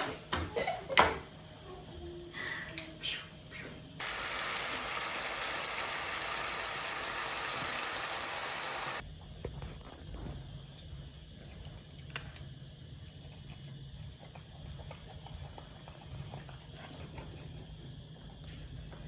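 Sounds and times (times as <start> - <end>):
water running: 4.0 - 9.0.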